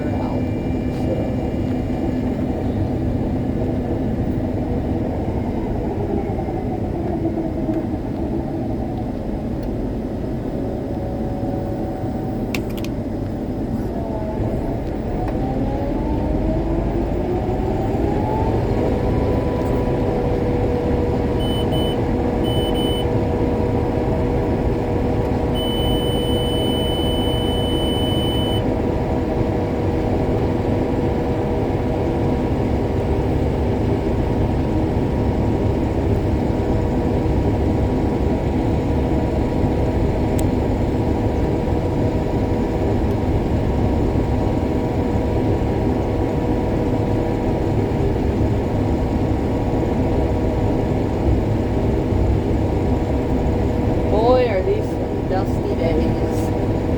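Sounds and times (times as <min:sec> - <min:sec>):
combine harvester drone: 0:00.0 - 0:56.9
long electronic beep: 0:21.4 - 0:23.1, 0:25.5 - 0:28.7
short electronic beeps: 0:21.4 - 0:23.1, 0:25.5 - 0:28.6.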